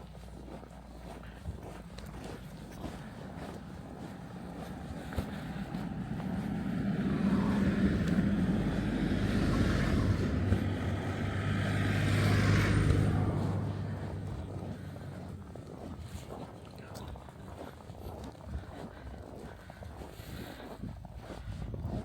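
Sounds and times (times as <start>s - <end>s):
vehicle driving past: 1.6s - 16.6s.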